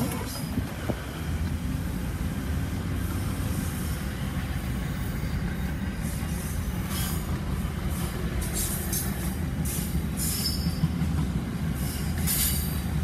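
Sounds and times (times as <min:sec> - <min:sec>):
car road noise: 0:00.0 - 0:05.3
freight train rumbling: 0:00.0 - 0:13.0.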